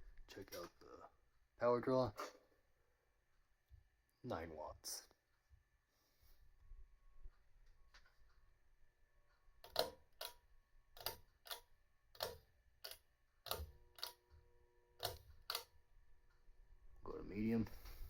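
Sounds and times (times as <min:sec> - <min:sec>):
ceiling fan ticking: 0:09.3 - 0:16.5.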